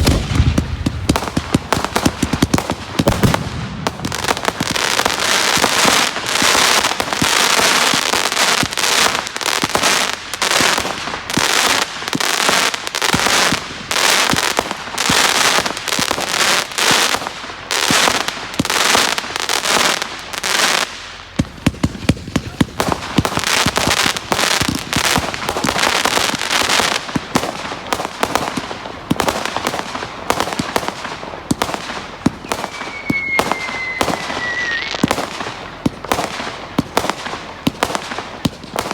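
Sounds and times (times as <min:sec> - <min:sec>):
fireworks bangs and bursts: 0:00.0 - 0:38.9
fireworks crackling: 0:00.0 - 0:38.9
falling whistle: 0:32.5 - 0:35.0.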